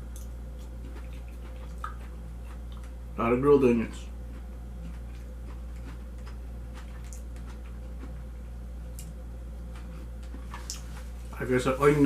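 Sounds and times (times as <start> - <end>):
low electrical hum: 0.0 - 12.0
eating clicks: 0.2 - 2.9.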